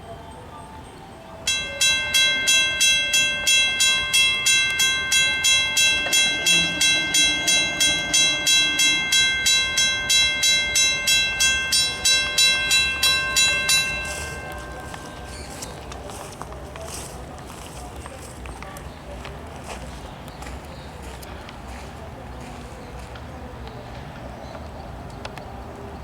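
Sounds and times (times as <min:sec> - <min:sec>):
railroad crossing bell ringing: 0:00.0 - 0:18.2.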